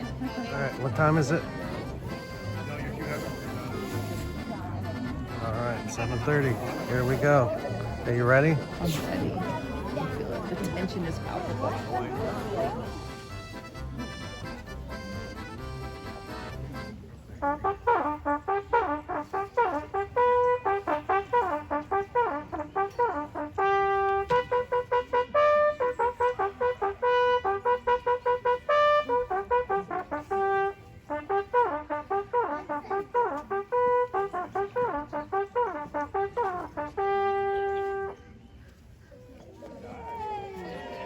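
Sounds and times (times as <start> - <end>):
solo trumpet playing fast tune: 17.4 - 38.2.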